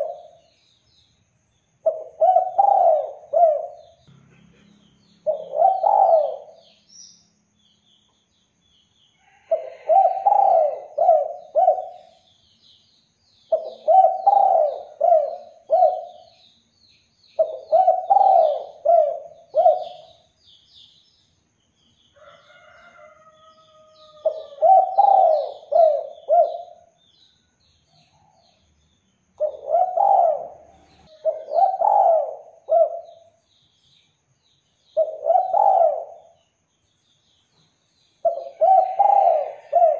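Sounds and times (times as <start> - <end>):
dove cooing: 0.0 - 0.4, 1.8 - 4.0, 5.2 - 6.8, 9.5 - 12.2, 13.5 - 16.3, 17.4 - 20.2, 24.1 - 26.9, 29.4 - 33.3, 35.0 - 36.4, 38.2 - 39.9
small birds chirping: 0.0 - 39.9.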